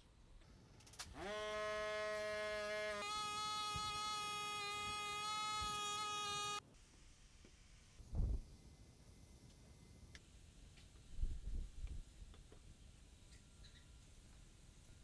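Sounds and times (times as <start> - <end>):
buzzing tone rising in pitch: 1.2 - 6.6.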